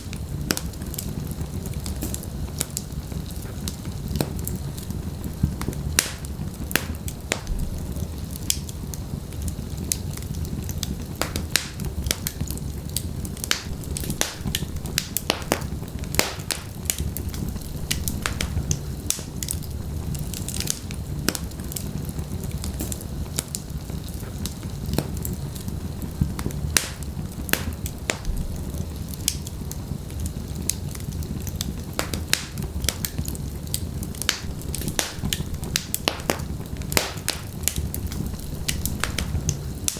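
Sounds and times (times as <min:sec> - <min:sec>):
logs crackling and popping: 0:00.0 - 0:39.9
low rumble of flames: 0:00.0 - 0:39.9.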